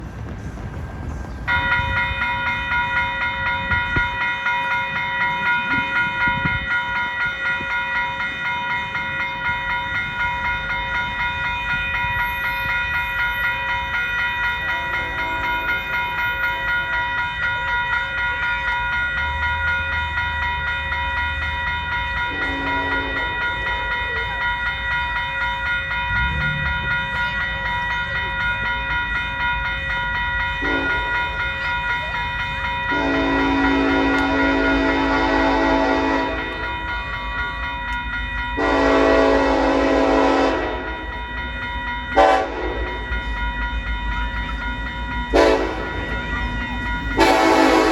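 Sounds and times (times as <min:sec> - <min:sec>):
freight train rumbling past: 0:00.0 - 0:47.9
high many-toned ringing: 0:01.5 - 0:47.9.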